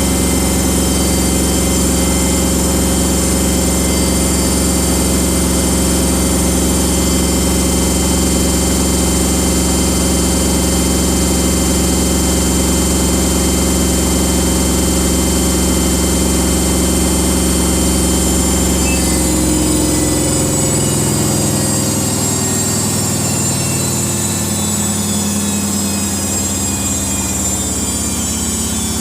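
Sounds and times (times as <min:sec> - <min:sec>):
washing machine spinning: 0:00.0 - 0:29.0.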